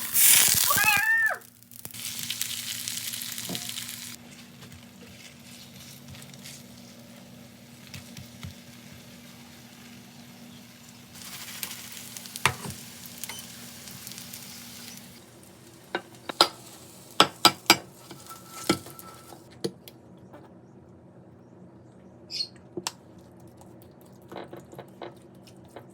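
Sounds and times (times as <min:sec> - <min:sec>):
food sizzling in a pan: 0:00.0 - 0:19.5
utensil clacking against pan: 0:16.0 - 0:19.4.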